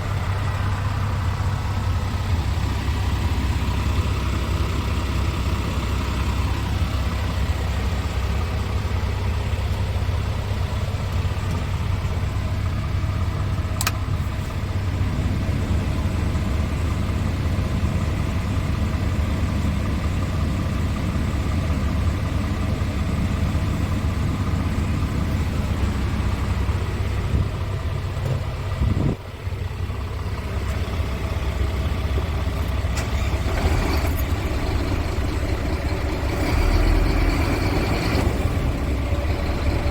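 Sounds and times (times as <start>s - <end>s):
truck diesel engine idling: 0.0s - 39.9s
sharp click: 13.8s - 14.0s.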